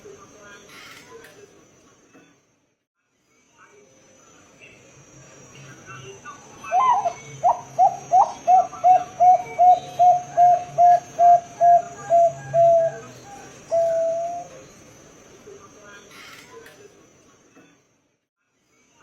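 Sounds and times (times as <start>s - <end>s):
dove cooing: 6.6s - 14.6s.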